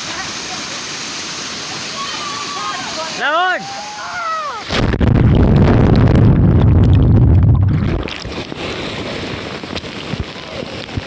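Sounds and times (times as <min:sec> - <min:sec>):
waterfall roar: 0:00.0 - 0:04.7
wind buffeting microphone: 0:04.7 - 0:11.0.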